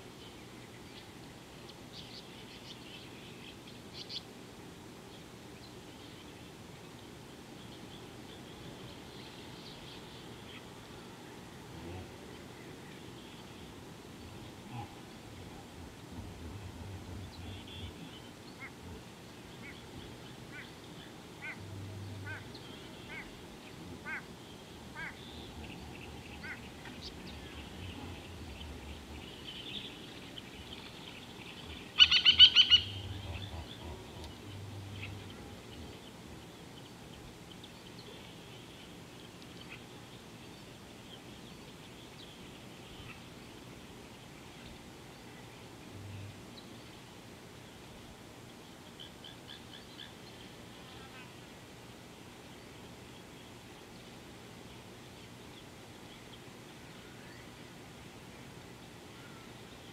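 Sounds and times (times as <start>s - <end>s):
short bird calls: 19.6s - 30.8s, 31.5s - 36.1s.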